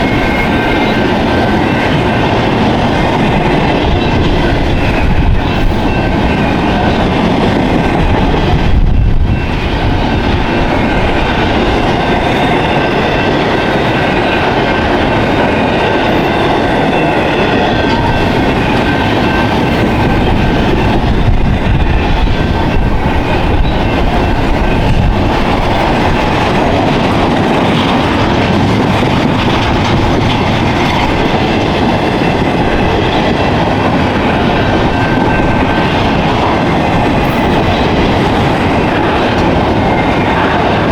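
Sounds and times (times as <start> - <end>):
freight train wheels rumbling: 0.0 - 40.9.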